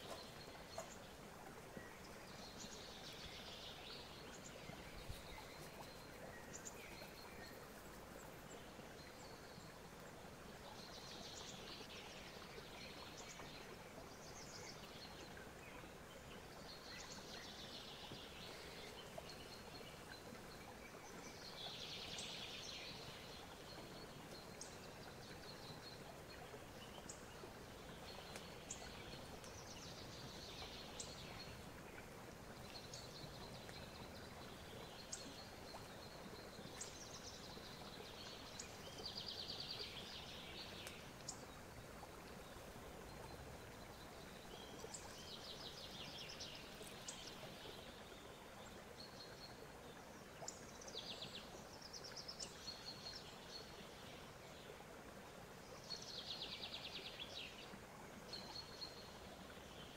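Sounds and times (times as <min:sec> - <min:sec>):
faint birds chirping: 0:00.0 - 0:59.9
steady low hiss: 0:00.0 - 0:59.9.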